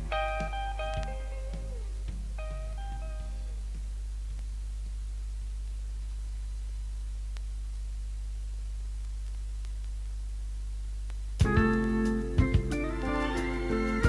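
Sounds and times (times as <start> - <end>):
music track: 0.0 - 3.6, 11.4 - 14.0
faint hiss: 0.0 - 14.0
low electrical hum: 0.0 - 14.0
faint ticks: 0.1 - 6.5, 7.2 - 7.9, 8.9 - 10.3, 11.0 - 12.2.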